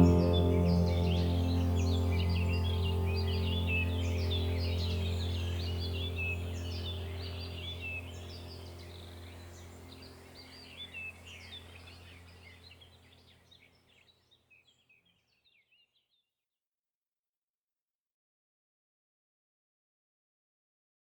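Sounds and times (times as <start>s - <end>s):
low steady hum: 0.0s - 13.1s
songbirds chirping and twittering: 0.0s - 16.3s.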